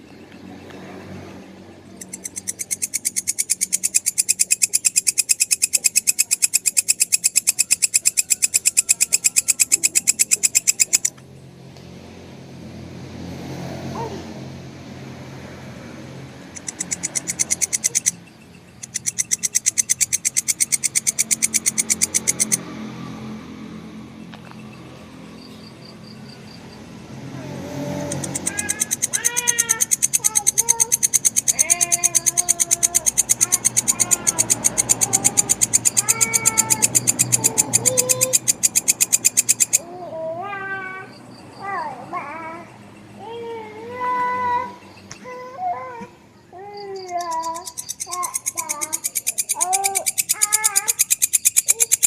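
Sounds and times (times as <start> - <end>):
grasshopper chirping: 1.1 - 11.2, 14.9 - 52.0
person calling: 16.4 - 18.2, 18.8 - 22.6, 27.3 - 45.6, 46.7 - 52.0.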